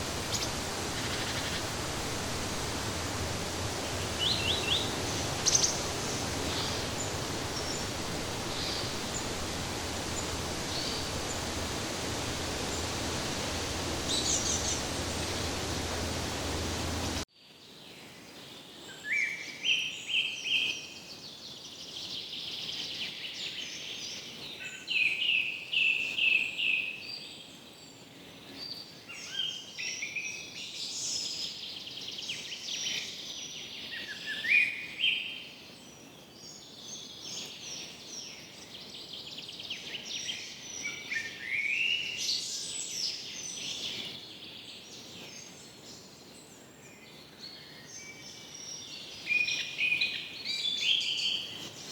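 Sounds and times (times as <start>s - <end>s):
chorus of chirping birds: 0.0s - 17.2s
insects chirping: 0.0s - 17.2s.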